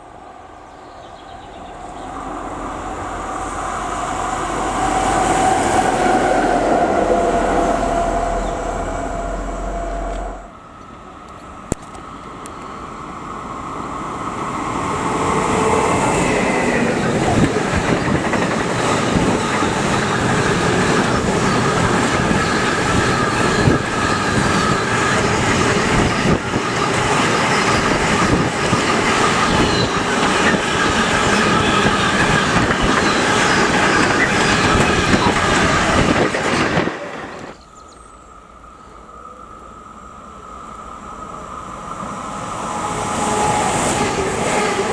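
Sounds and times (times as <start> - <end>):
train wheel squeal: 3.5 - 10.5, 14.8 - 38.0, 40.6 - 44.9
train wheels clacking on rails: 14.8 - 37.6.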